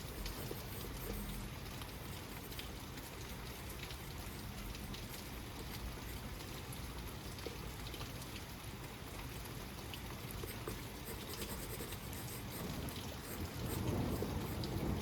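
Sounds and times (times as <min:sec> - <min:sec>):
raindrops pattering: 0:00.0 - 0:15.0
water trickling: 0:00.0 - 0:15.0
rain hissing: 0:10.0 - 0:15.0.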